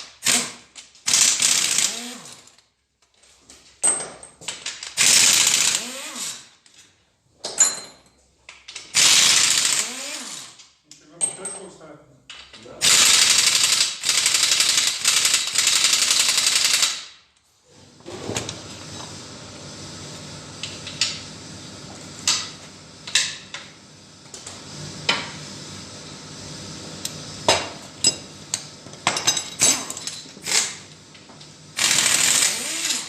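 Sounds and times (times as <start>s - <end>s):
pneumatic tool burst: 0.0s - 2.5s, 4.9s - 6.5s, 8.9s - 10.6s, 12.8s - 17.2s, 29.6s - 30.9s, 31.8s - 33.0s
metal parts clinking: 29.2s - 30.6s.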